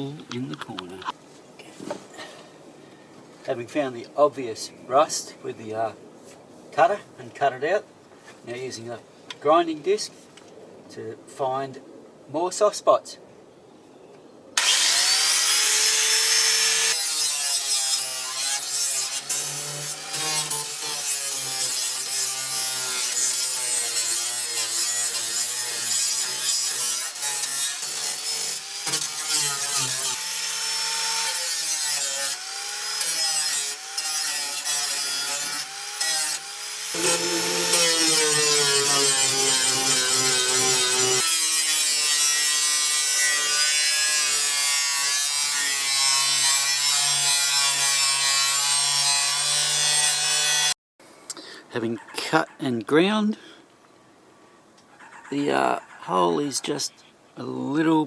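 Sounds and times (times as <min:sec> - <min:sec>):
angle grinder grinding steel: 0:14.6 - 0:50.8.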